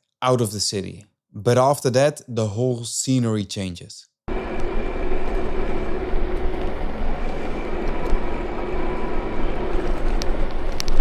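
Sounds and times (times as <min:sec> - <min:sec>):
bicycle road rumble: 0:04.3 - 0:11.0.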